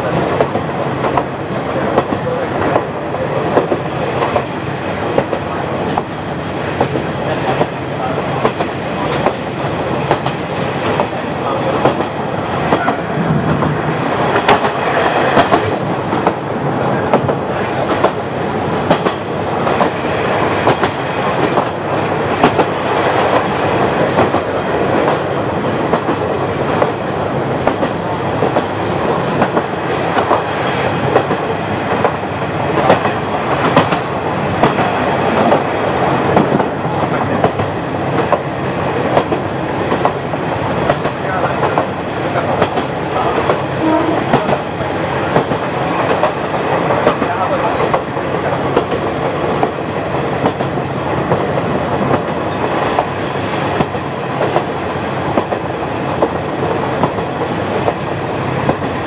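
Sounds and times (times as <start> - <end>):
train running rumble: 0.0 - 59.0.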